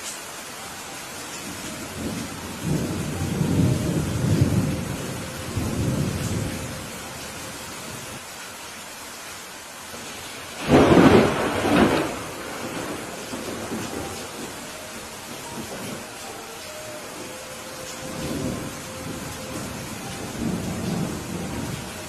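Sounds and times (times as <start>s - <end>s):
rain hiss: 0.0s - 22.0s
rolling thunder rumble: 1.8s - 8.1s, 10.6s - 16.2s, 17.9s - 22.0s
sharp thunderclap: 10.6s - 14.4s.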